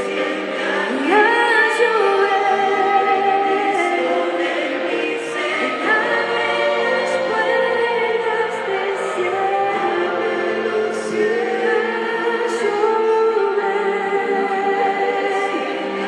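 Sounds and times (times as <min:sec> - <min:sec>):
choir singing in harmony: 0:00.0 - 0:16.0.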